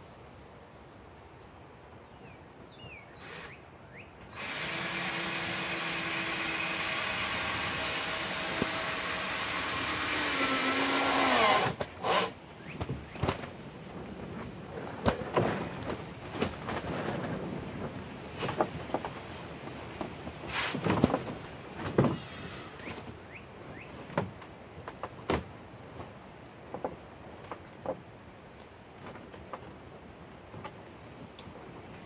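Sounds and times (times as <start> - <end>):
electric drill motor running: 4.4 - 12.3.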